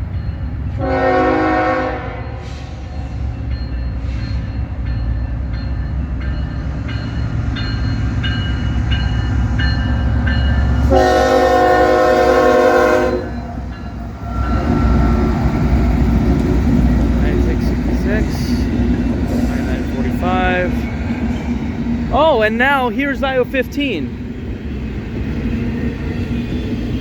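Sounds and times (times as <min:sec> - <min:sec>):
crossing bell ringing: 0:00.0 - 0:16.2
freight train rumbling past: 0:00.0 - 0:27.0
locomotive air horn: 0:00.8 - 0:02.8, 0:10.8 - 0:13.6.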